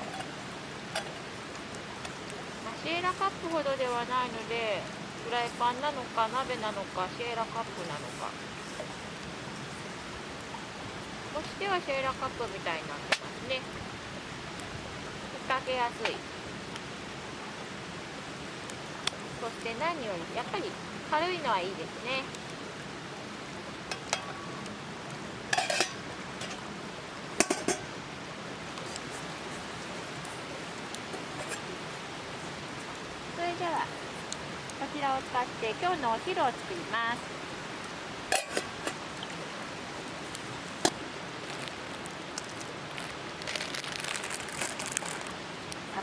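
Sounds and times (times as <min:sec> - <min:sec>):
background hiss: 0:00.0 - 0:46.0
metal pan and lid clinking: 0:25.5 - 0:26.6, 0:27.4 - 0:27.9, 0:38.3 - 0:38.7
plastic packet crinkling: 0:41.4 - 0:45.4.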